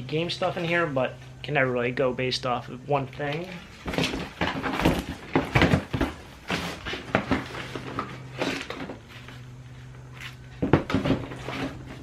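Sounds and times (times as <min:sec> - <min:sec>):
steady low hum: 0:00.0 - 0:12.0
knocks and clatters of items: 0:03.3 - 0:09.4, 0:10.3 - 0:12.0.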